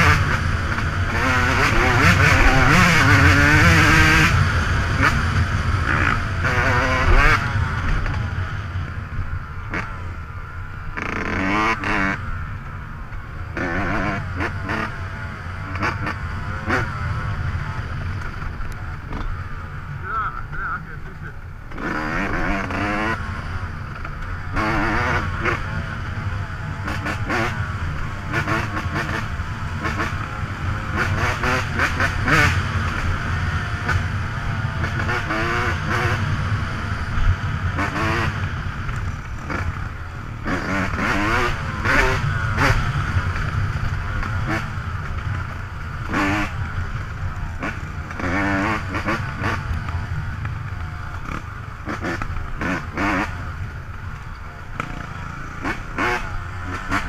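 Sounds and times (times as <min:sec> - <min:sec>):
dirt bike engine revving: 0:00.0 - 0:57.0
steady low rumble: 0:14.2 - 0:21.8.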